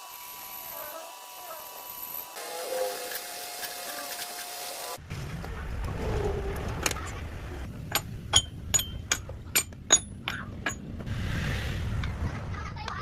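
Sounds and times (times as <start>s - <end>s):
low rumble: 5.0s - 8.7s.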